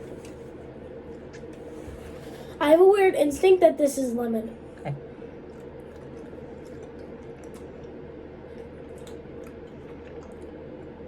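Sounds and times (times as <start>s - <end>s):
steady low hum: 0.0s - 11.0s
chewing gummy candy: 5.4s - 11.0s.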